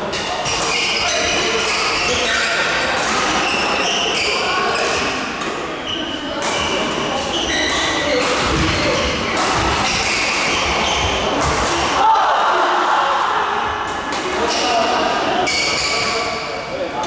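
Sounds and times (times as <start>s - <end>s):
sneakers squeaking on floor: 0.1s - 5.2s, 5.8s - 11.8s, 15.4s - 16.5s
rackets hitting shuttlecock: 0.4s - 4.0s, 6.4s - 12.1s.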